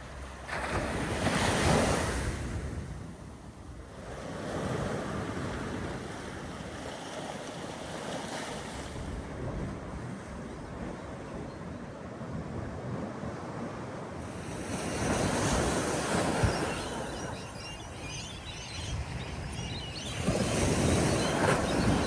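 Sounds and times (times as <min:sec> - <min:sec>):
small waves washing onto beach: 0:00.0 - 0:11.2, 0:12.0 - 0:22.0
seagulls calling: 0:14.2 - 0:22.0.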